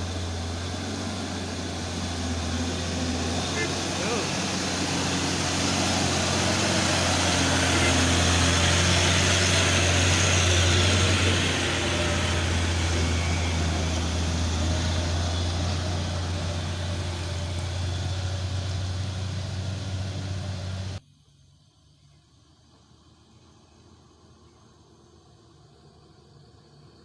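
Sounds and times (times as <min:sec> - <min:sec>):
road noise: 0:00.0 - 0:21.0
truck diesel engine under load: 0:00.0 - 0:21.0.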